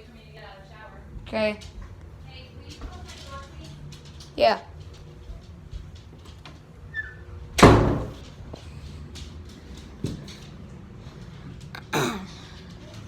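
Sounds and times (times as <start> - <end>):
door closing with bang: 7.6 - 8.3.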